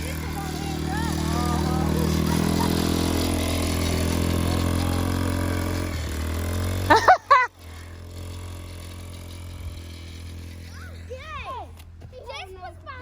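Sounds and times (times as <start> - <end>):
engine running: 0.0 - 13.0
person whooping: 6.9 - 7.5.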